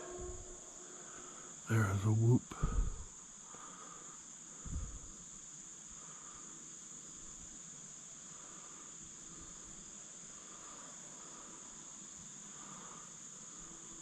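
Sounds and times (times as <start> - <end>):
faint lower repeating calls: 0.0 - 3.7
crickets and insects chirping: 0.0 - 14.0.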